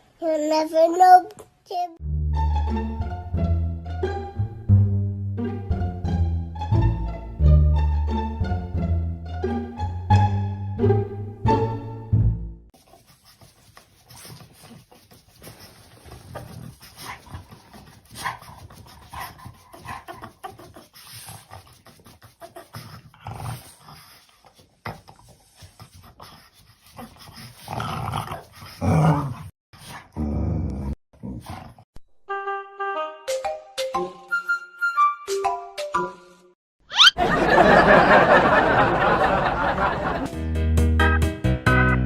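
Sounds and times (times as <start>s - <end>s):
music with clear notes: 2.0s - 12.5s, 40.3s - 42.0s
dog making noises: 12.9s - 27.7s.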